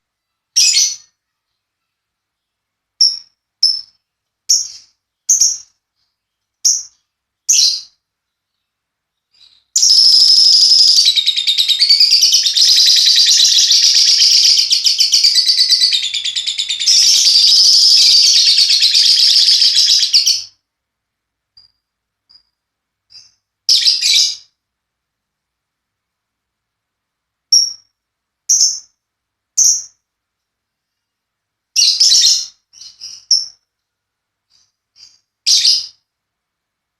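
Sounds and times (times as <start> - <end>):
lovebird chirping and trilling: 0.5 - 1.2, 2.4 - 8.0, 9.3 - 20.6, 23.1 - 24.5, 28.5 - 28.9, 29.6 - 30.0, 31.8 - 33.6, 34.5 - 36.0.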